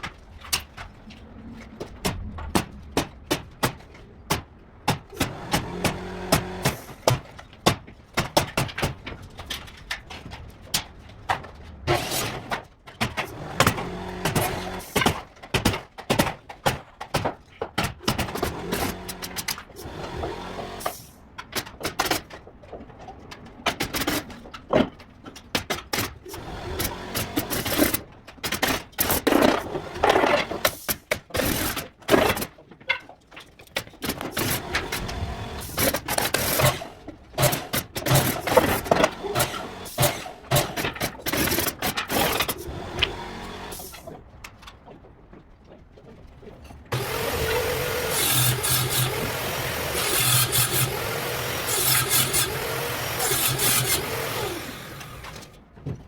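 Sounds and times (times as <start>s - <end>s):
carpentry knocks and clicks: 2.0s - 11.6s, 12.4s - 20.1s, 21.4s - 35.2s.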